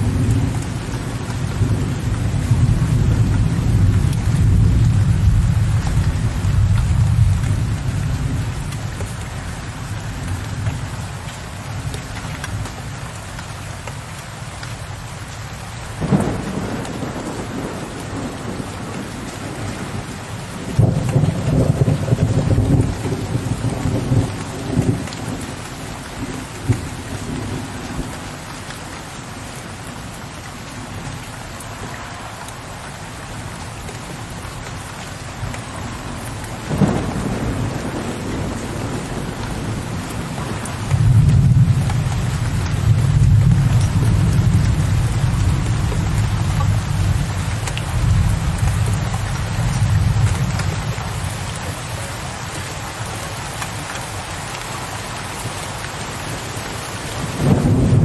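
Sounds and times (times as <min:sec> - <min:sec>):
thunder clap and rumble: 0:00.0 - 0:09.2, 0:16.0 - 0:28.3, 0:33.8 - 0:51.9, 0:57.0 - 0:58.0
heavy rain: 0:00.0 - 0:58.0
thunder crack: 0:16.0 - 0:19.1, 0:36.7 - 0:42.2, 0:57.3 - 0:58.0.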